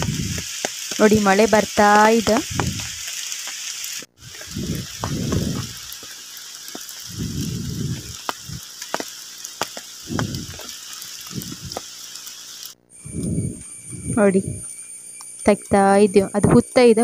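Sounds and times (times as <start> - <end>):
rain falling on foliage: 0.0 - 12.8
raindrop ticks: 0.0 - 13.4
low rumbles: 2.2 - 3.0, 4.2 - 6.0, 7.0 - 8.7, 10.1 - 11.8, 13.0 - 14.7.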